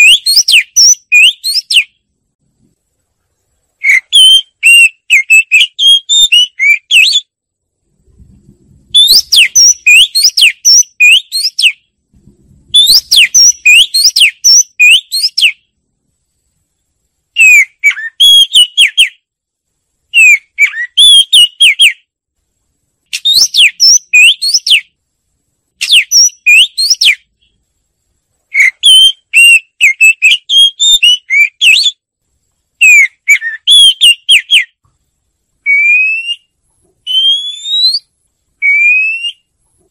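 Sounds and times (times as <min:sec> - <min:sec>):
bird singing whistled phrases: 0:00.0 - 0:02.0, 0:03.8 - 0:07.3, 0:08.9 - 0:11.8, 0:12.7 - 0:15.7, 0:17.4 - 0:19.2, 0:20.1 - 0:22.0, 0:23.1 - 0:24.9, 0:25.8 - 0:27.3, 0:28.5 - 0:32.0, 0:32.8 - 0:34.8, 0:35.6 - 0:39.5.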